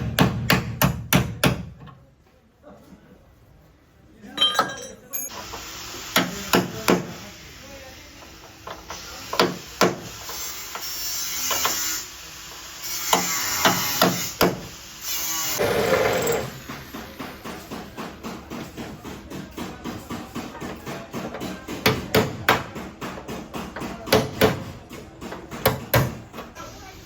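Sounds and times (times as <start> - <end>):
hammer on sheet metal: 0.0 - 1.8, 13.0 - 14.7, 16.7 - 26.4.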